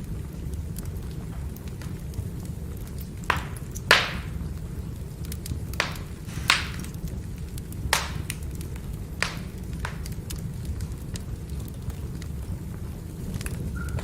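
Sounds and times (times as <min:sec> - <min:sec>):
firewood burning rumble: 0:00.0 - 0:14.0
wood crackling: 0:00.0 - 0:14.0
wood popping loudly: 0:03.2 - 0:04.4, 0:05.8 - 0:07.2, 0:07.9 - 0:08.5.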